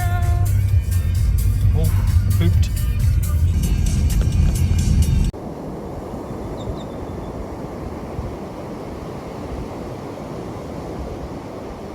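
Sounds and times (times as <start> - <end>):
background music: 0.0 - 5.3
ocean surf: 5.3 - 11.9.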